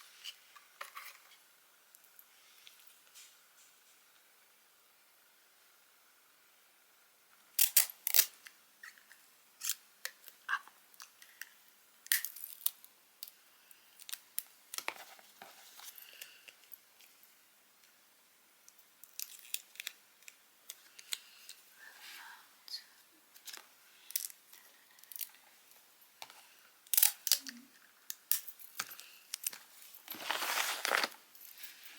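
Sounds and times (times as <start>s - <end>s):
small objects clicking and crinkling: 7.6s - 13.4s, 14.0s - 17.2s, 18.7s - 21.6s, 23.3s - 31.9s.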